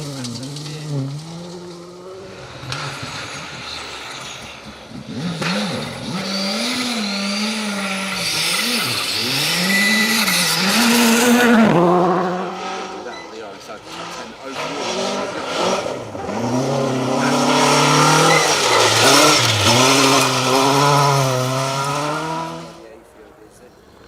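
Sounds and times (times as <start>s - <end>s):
rally car engine revving: 0.0s - 23.1s.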